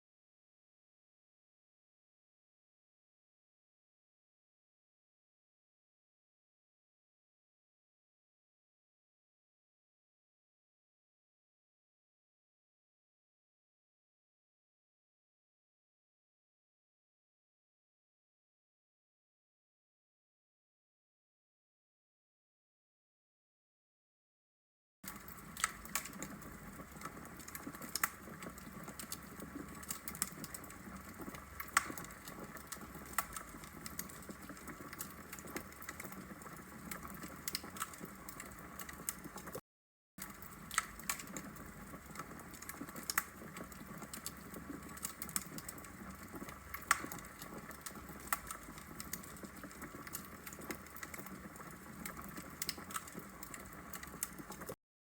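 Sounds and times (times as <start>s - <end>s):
fire low steady hiss: 25.1s - 39.6s, 40.2s - 54.8s
log fire crackling and popping: 25.1s - 39.6s, 40.2s - 54.8s.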